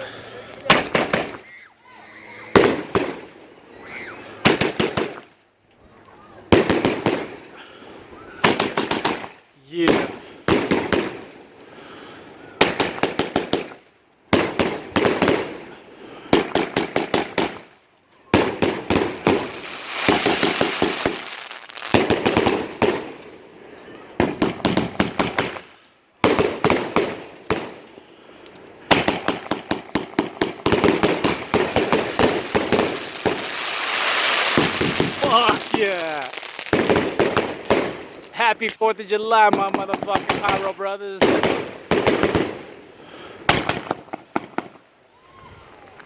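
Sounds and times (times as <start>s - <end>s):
firework cake firing volleys: 18.3s - 44.9s
crackling shells: 19.2s - 22.4s, 29.0s - 38.9s.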